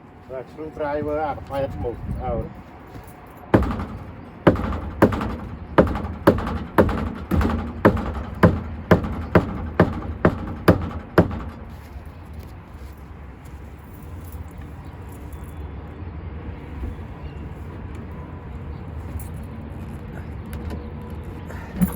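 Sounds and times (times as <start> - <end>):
hand tool knocking on hard surface: 3.6 - 11.9.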